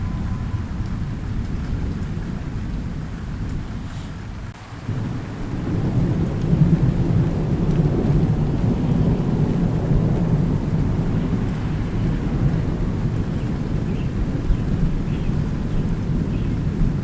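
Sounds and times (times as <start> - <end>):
steady rain: 0.0 - 17.0
thunder rumbling: 0.0 - 17.0.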